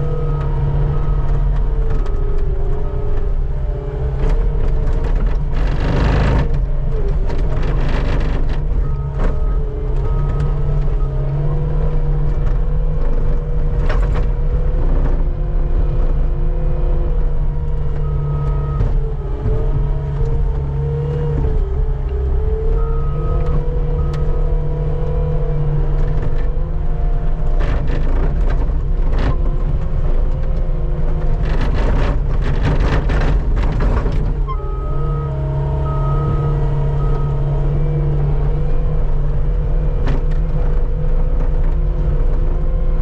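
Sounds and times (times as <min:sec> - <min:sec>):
skid steer engine whining: 0:00.0 - 0:43.0.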